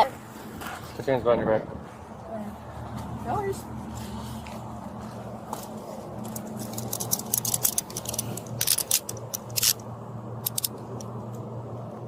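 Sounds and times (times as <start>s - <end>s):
steady low hum: 0.1s - 12.0s
handcuffs clicking and rattling: 6.3s - 9.8s, 10.4s - 11.1s.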